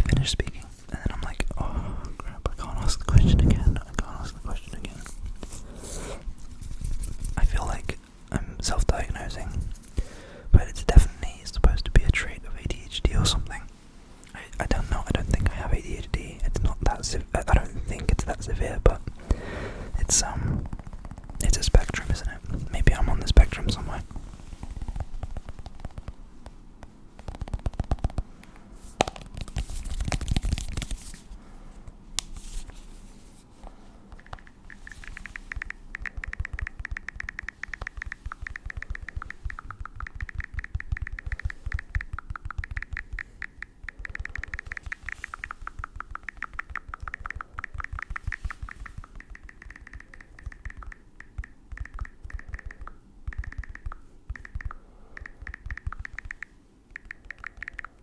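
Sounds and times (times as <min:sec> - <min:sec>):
scratching and tapping on object: 0:20.0 - 0:28.3, 0:29.0 - 0:31.2, 0:34.1 - 0:58.0.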